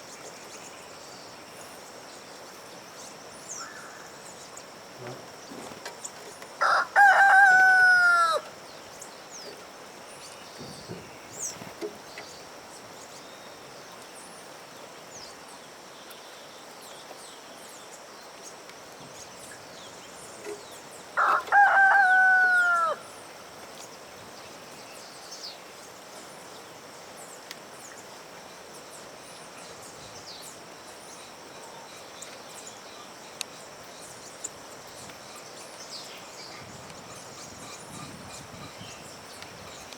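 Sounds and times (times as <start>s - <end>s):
rooster crowing: 6.6s - 8.5s, 21.2s - 23.0s.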